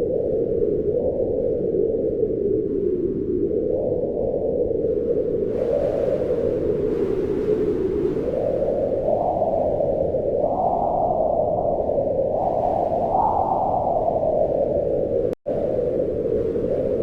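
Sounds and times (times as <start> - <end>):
wind howling in gusts: 0.0 - 17.0.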